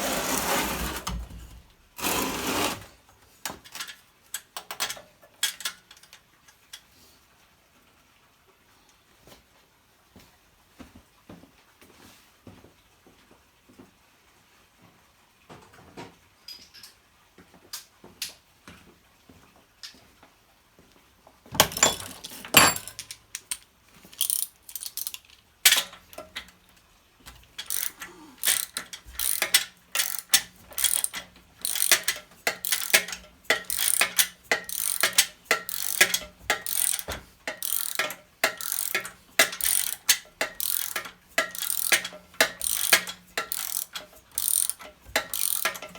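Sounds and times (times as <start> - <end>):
ratchet wrench clicking: 24.2 - 26.5, 27.5 - 45.9.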